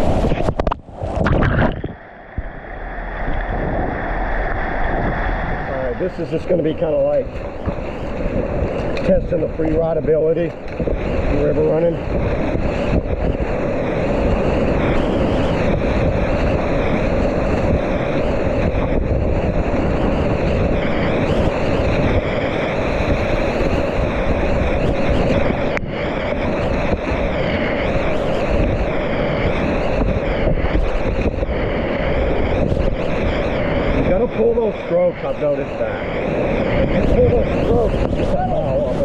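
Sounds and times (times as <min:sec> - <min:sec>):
whitewater rushing: 0:00.0 - 0:09.5
wind buffeting microphone: 0:00.0 - 0:39.0.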